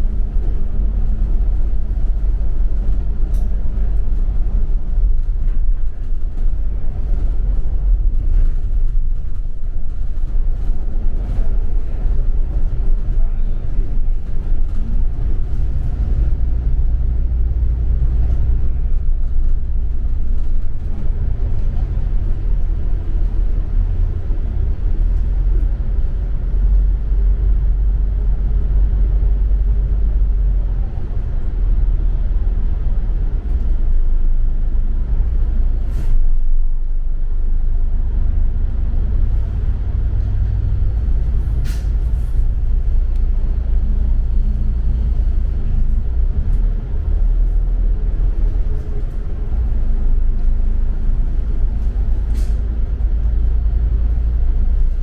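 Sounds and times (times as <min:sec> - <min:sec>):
bus engine and road rumble: 0:00.0 - 0:55.0.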